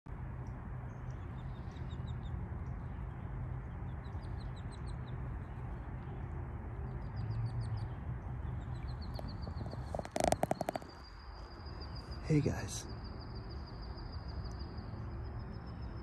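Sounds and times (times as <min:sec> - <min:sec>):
steady low rumble: 0:00.1 - 0:16.0
songbird singing high chirps: 0:06.8 - 0:16.0.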